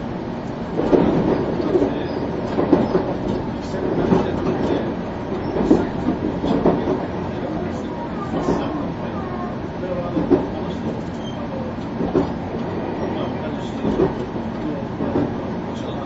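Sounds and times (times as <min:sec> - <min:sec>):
train rumbling: 0:00.0 - 0:16.0
clattering knocks from wheels: 0:00.8 - 0:07.1, 0:10.2 - 0:12.7.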